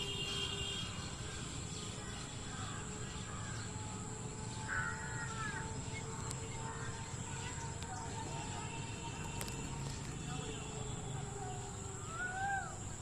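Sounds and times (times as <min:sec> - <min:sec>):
faint bird calls: 0:00.0 - 0:09.9, 0:10.6 - 0:13.0
outdoor background noise: 0:00.0 - 0:13.0
loud bird call: 0:11.4 - 0:13.0.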